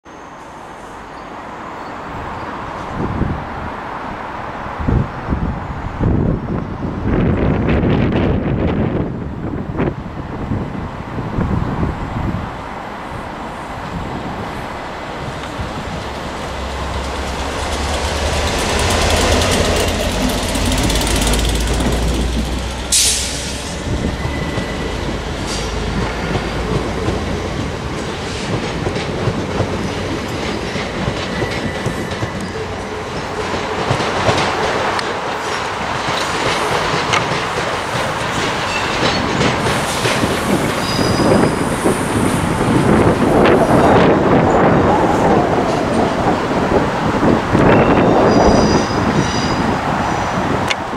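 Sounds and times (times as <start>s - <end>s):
standing train humming: 1.0s - 50.9s
diesel locomotives running: 13.8s - 50.9s
sharp hiss: 22.8s - 24.0s
wheel squeal: 40.8s - 41.6s, 47.7s - 49.6s.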